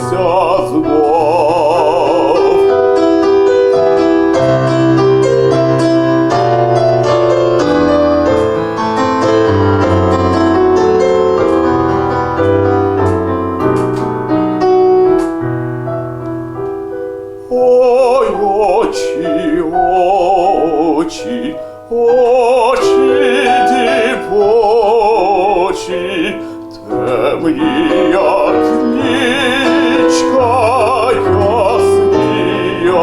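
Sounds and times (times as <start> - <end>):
man singing with vibrato: 0.0 - 13.1, 17.3 - 33.0
piano playing chords: 0.0 - 33.0.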